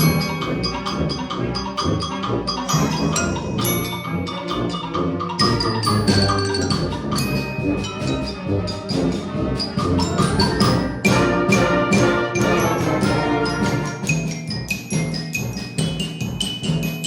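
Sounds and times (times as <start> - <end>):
concert band playing: 2.7 - 14.4.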